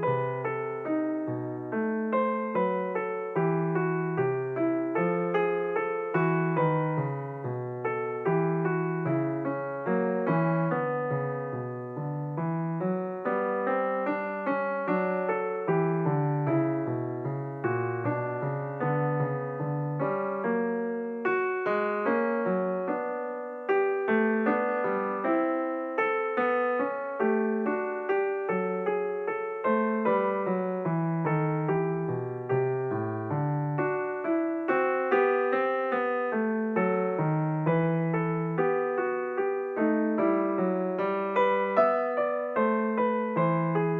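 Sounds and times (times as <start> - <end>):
calm slow piano music: 0.0 - 43.9.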